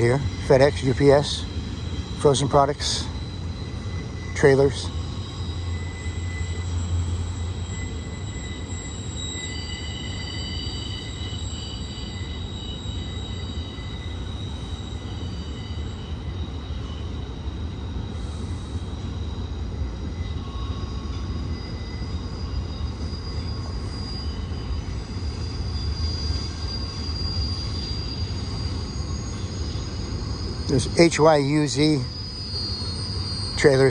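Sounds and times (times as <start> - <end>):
high-pitched wheel squeals: 0.0 - 33.9
train wheels rumbling on rails: 0.0 - 33.9.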